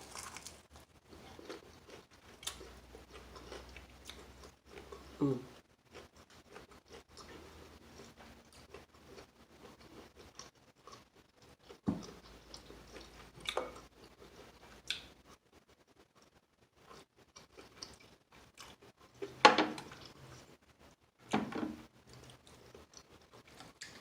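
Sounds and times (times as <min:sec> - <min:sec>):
crunching: 0:00.0 - 0:04.6
person chewing chicken: 0:00.0 - 0:20.6, 0:22.0 - 0:24.0.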